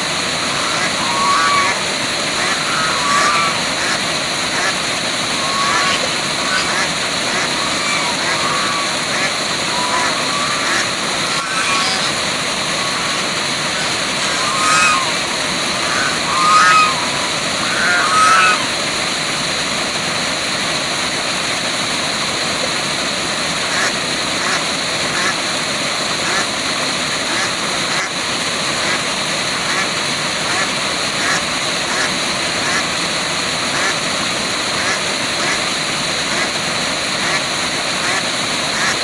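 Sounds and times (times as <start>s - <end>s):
bird calls: 0.0s - 18.8s
waterfall rushing: 0.0s - 39.0s.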